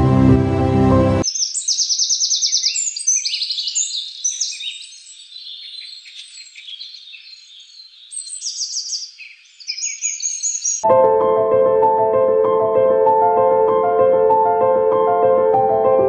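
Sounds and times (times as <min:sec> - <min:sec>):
songbirds chirping and calling: 0:01.2 - 0:10.8.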